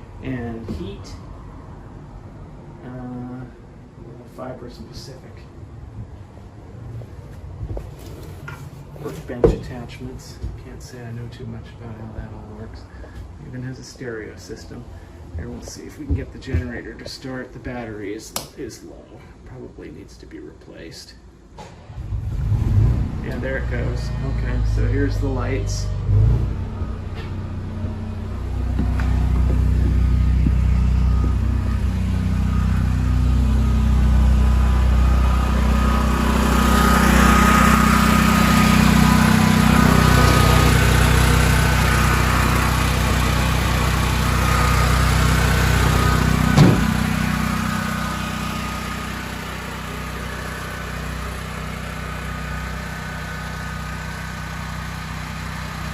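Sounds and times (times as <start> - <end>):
portable generator running: 23.1 - 55.9
sharp knock: 46.6 - 46.9.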